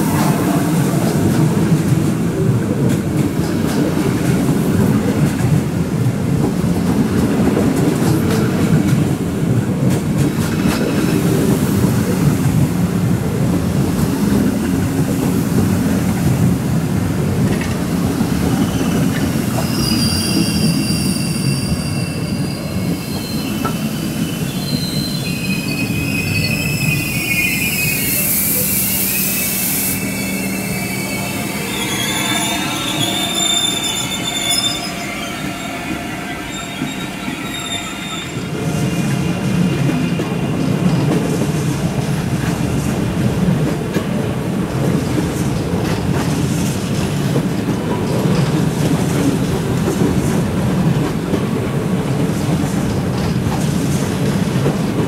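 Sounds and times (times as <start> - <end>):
train cars rumbling over rails: 0.0 - 55.0
train wheels squealing: 18.3 - 41.2.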